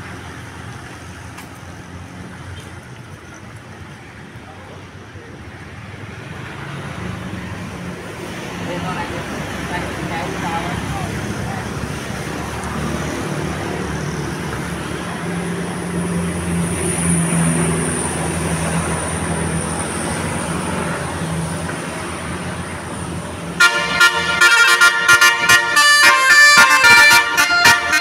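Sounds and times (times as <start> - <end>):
bus engine running: 0.0 - 28.0
traffic noise: 0.0 - 28.0
musical bus horn blasts: 23.6 - 28.0.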